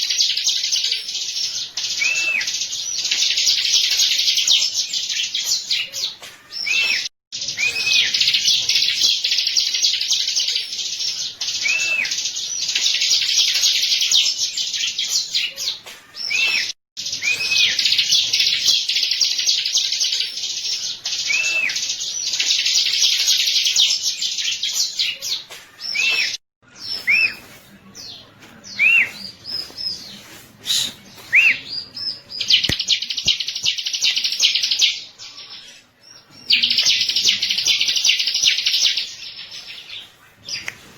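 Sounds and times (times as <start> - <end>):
bird chattering song: 0.0 - 40.7
short whistled bird notes: 30.6 - 31.7.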